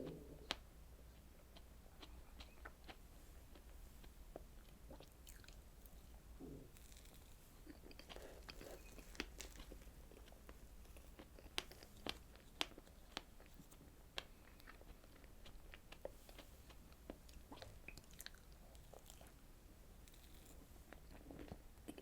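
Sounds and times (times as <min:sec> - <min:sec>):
close chewing: 0:00.0 - 0:19.4
small crunches: 0:05.0 - 0:16.5.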